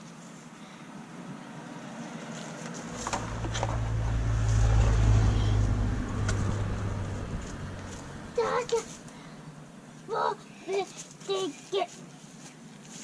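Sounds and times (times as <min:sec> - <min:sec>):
vehicle engine droning: 0:01.8 - 0:09.6.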